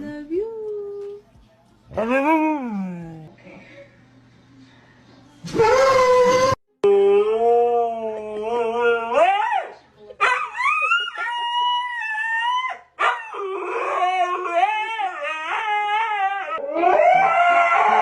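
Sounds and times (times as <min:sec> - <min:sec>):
dog howling: 0:10.6 - 0:18.0.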